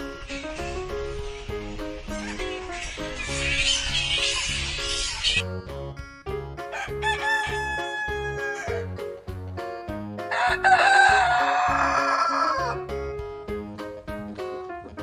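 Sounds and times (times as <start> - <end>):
background music with beat: 5.4 - 15.0
rooster crowing: 6.7 - 8.8, 10.3 - 12.8.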